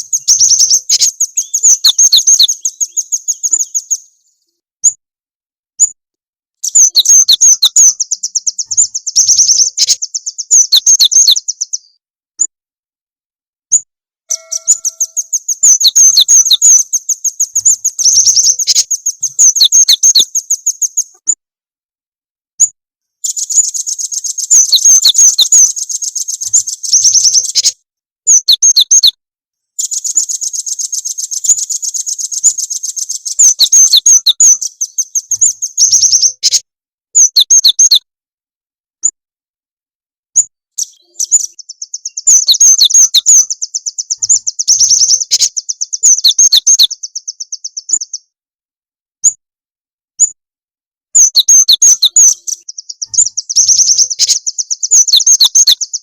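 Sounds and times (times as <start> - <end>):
songbird chirping trills: 0.0 - 5.0, 6.6 - 12.0, 13.7 - 21.3, 23.2 - 29.2, 29.8 - 36.6, 37.2 - 38.1, 40.8 - 48.4, 51.2 - 56.0.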